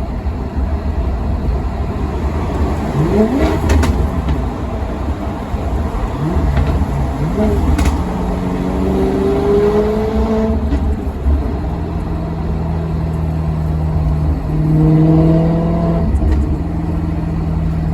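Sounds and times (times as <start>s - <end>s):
car engine rumbling: 0.0s - 17.9s.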